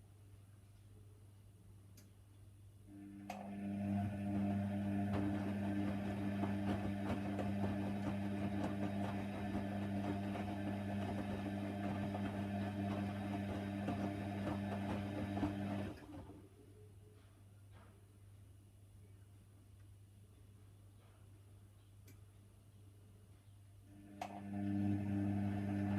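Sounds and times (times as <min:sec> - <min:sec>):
washer dryer running: 0:03.0 - 0:16.4, 0:24.0 - 0:25.9.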